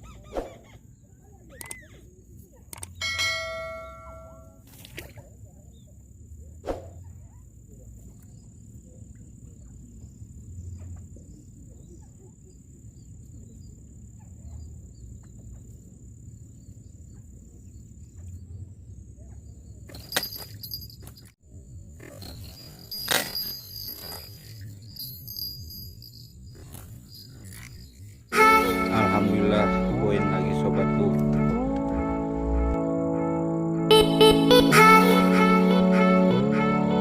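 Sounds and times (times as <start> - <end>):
clatter: 19.9 - 21.4
high-pitched insect drone: 22.0 - 30.0
low rumble: 29.2 - 33.8.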